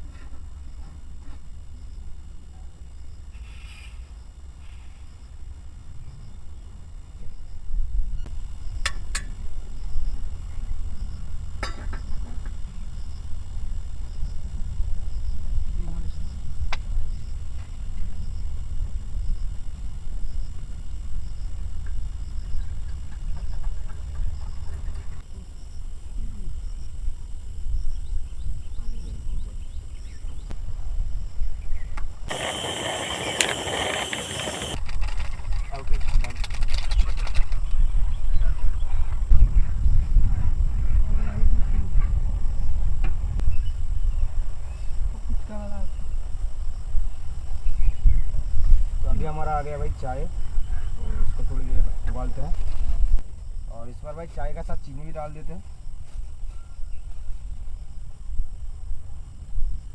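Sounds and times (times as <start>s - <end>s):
wind rumble on microphone: 5.8s - 54.8s, 55.5s - 59.9s
loud hiss: 32.3s - 34.8s.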